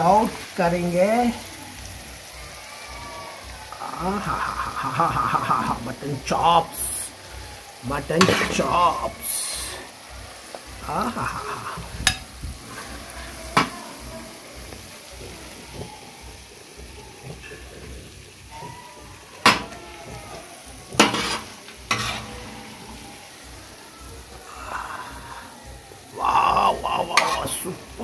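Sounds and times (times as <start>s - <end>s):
meat sizzling in oil: 0.0s - 28.0s
spoon clanking against griddle: 8.2s - 8.6s, 12.0s - 12.3s, 19.4s - 20.2s, 20.9s - 22.8s
metal spoon scraping griddle: 8.2s - 9.4s, 17.4s - 23.3s.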